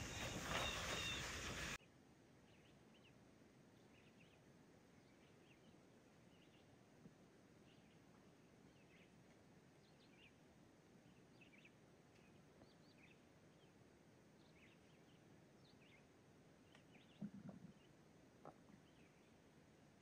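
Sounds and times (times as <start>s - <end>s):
faint high bird chirps: 0.0s - 1.8s, 2.4s - 3.2s, 14.4s - 19.5s.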